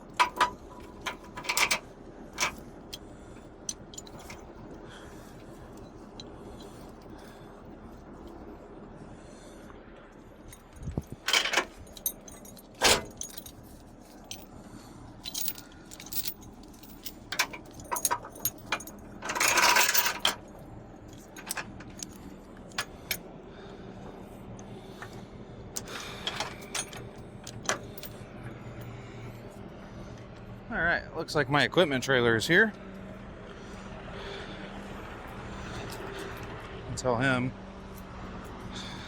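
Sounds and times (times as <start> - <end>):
loose metal clinking and rattling: 0.0 - 7.3, 10.5 - 14.6, 15.2 - 20.5, 21.1 - 23.2, 25.8 - 28.2.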